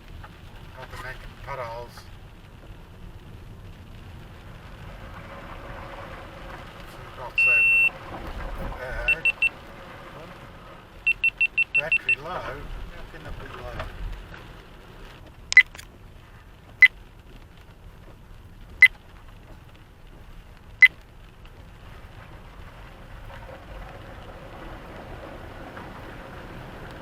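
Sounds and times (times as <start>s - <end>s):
car driving on wet road: 0.0s - 27.0s
high electronic beeps: 7.4s - 7.9s, 9.0s - 9.5s, 11.1s - 12.2s.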